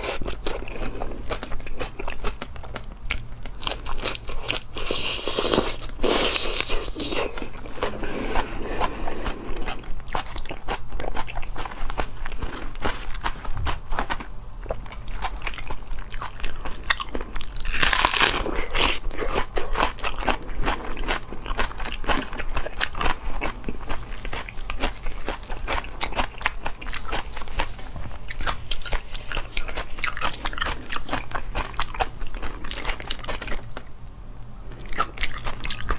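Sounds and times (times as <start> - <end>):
crunchy chewing: 0.0 - 33.9, 34.6 - 35.9.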